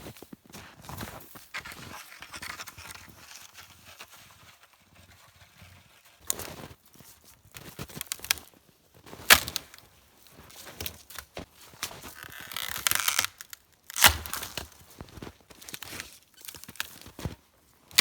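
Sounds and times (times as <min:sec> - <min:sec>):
firewood rustling and crunching: 0:00.4 - 0:18.0
firewood cracking: 0:07.7 - 0:08.6, 0:09.2 - 0:09.8, 0:11.8 - 0:17.2.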